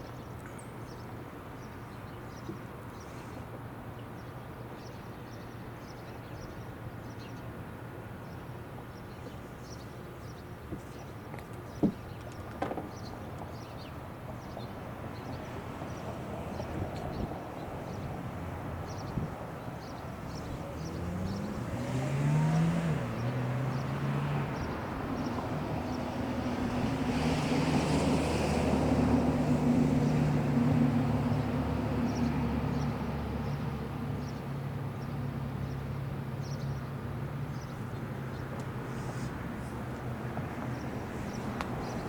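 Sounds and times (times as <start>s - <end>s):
vehicle engine revving: 20.1s - 25.4s.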